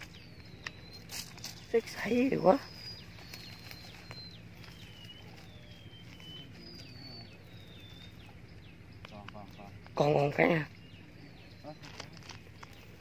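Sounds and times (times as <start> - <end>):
bird calling high whistles: 0.0 - 8.4.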